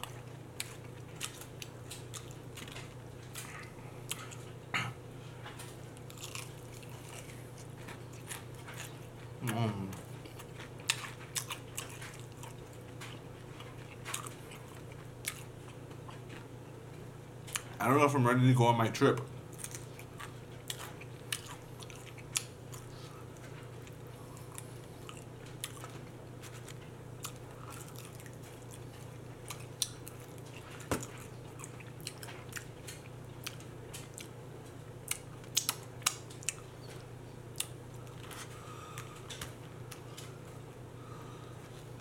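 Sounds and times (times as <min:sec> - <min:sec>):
low steady hum: 0:00.0 - 0:42.0
person chewing wet mouth clicks: 0:35.1 - 0:36.6.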